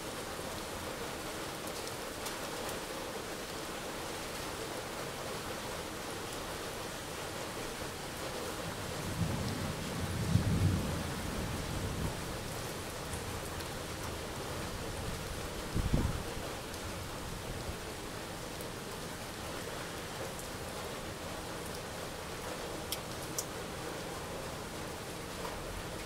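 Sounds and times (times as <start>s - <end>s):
heavy rain falling: 0.0s - 26.0s
low rumble of thunder: 8.8s - 14.2s, 14.8s - 16.4s.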